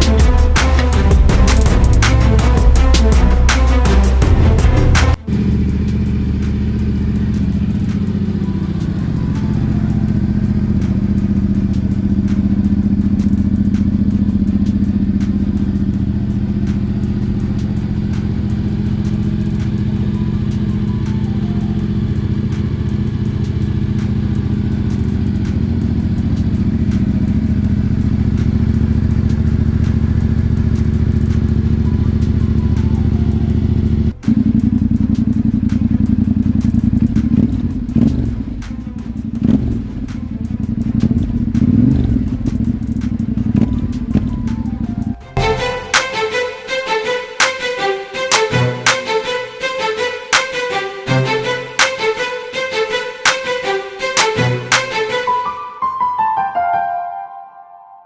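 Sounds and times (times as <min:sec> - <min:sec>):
motorcycle engine running steadily: 0:00.0 - 0:45.6.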